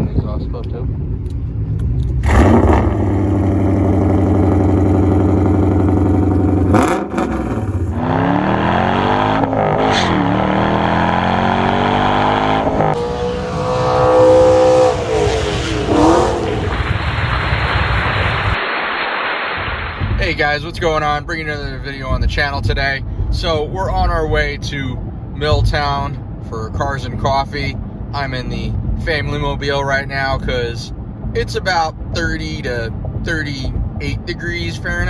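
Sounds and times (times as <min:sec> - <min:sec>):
car exhaust idling and revving: 0:01.0 - 0:18.6.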